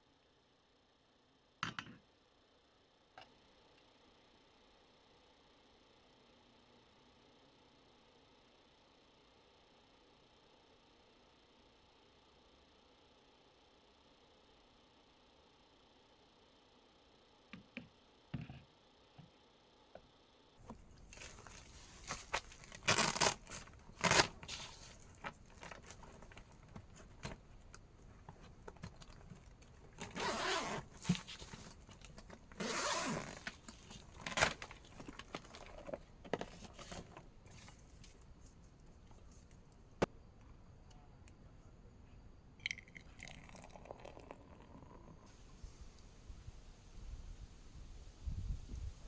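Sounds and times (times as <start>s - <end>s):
rustling: 20.6s - 39.6s.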